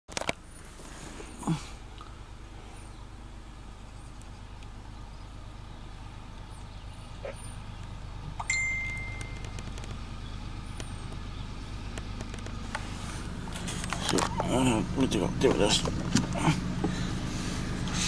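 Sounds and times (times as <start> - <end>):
diesel train rumbling: 0.4 - 18.0
metallic ring: 8.4 - 9.5.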